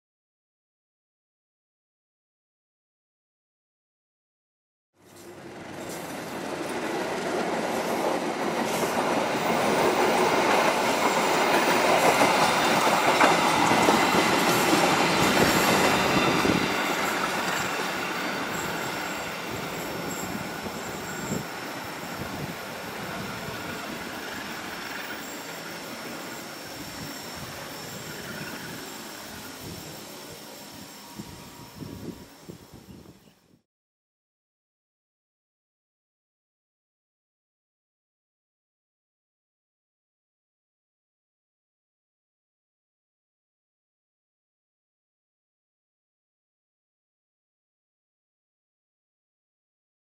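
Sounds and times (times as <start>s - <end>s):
train wheels clattering on rails: 5.1s - 30.4s
thin wheel squeal: 12.0s - 33.4s.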